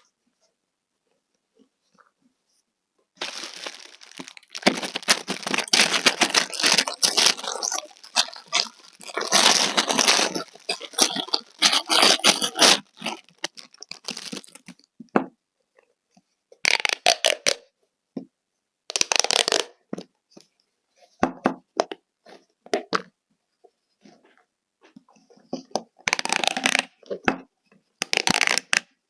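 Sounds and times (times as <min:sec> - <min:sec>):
toys crackling and crunching: 0:03.2 - 0:14.8.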